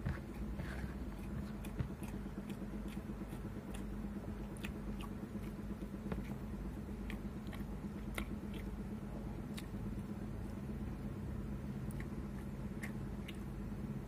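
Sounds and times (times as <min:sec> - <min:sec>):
person chewing food: 0:00.0 - 0:14.0
steady low hum: 0:00.0 - 0:14.0.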